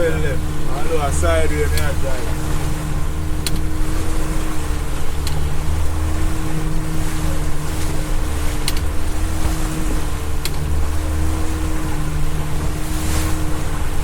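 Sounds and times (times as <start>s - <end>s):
boat motor running: 0.0s - 14.0s
water rushing past hull: 0.0s - 14.0s.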